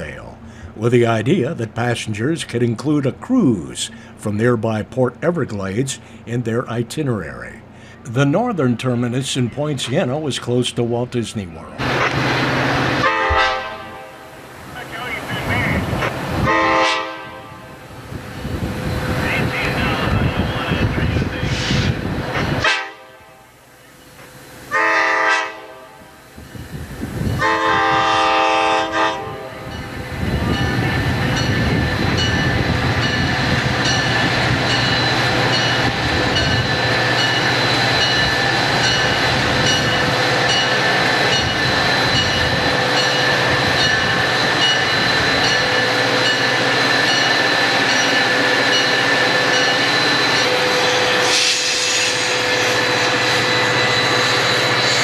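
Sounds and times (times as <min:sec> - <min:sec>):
train rolling past on rails: 0:00.0 - 0:55.0
locomotive air horn blasts: 0:13.0 - 0:14.3, 0:16.4 - 0:17.7, 0:22.6 - 0:23.5, 0:24.7 - 0:26.2, 0:27.4 - 0:29.6.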